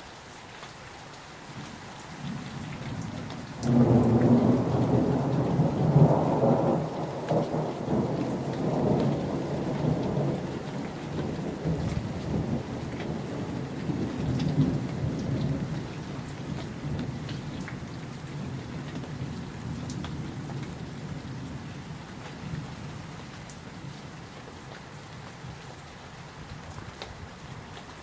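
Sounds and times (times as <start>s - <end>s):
steady rain: 0.0s - 28.0s
thunder rumbling: 3.6s - 17.8s.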